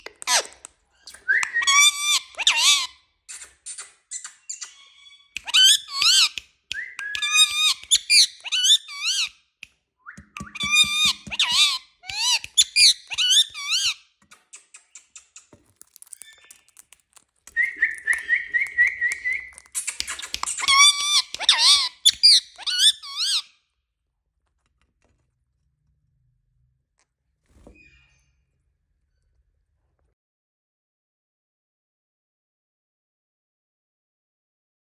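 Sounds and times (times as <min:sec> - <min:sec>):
parrot wavering whistles: 0:01.2 - 0:02.9
parrot squawky chatter: 0:10.4 - 0:15.5, 0:19.6 - 0:23.4
parrot warbling trill: 0:10.5 - 0:14.0.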